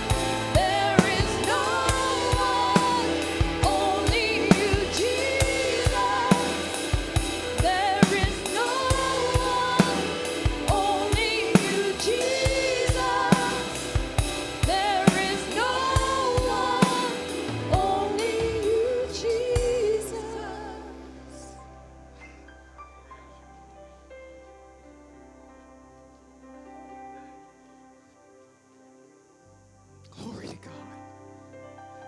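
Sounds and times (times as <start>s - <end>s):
drum kit beat: 0.0s - 18.8s
band playing: 0.0s - 19.8s
voices singing: 0.0s - 21.3s.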